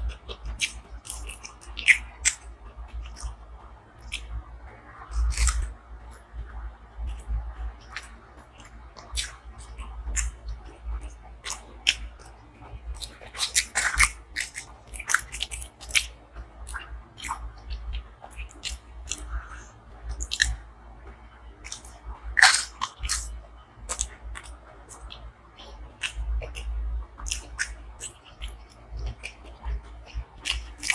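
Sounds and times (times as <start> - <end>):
mouth clicks: 0.0 - 3.4, 4.0 - 4.4, 5.0 - 5.7, 7.0 - 12.4, 13.0 - 20.6, 21.6 - 30.9
faint low hum: 0.0 - 30.9
person chewing and biting: 0.1 - 3.4, 4.0 - 4.3, 5.1 - 5.7, 7.1 - 10.4, 11.4 - 12.3, 13.0 - 20.6, 21.6 - 30.9
sharp crunches: 22.4 - 23.3.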